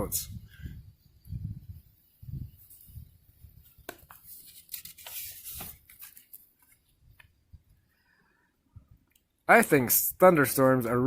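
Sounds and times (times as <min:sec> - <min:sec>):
paper rustling: 0:03.6 - 0:07.0.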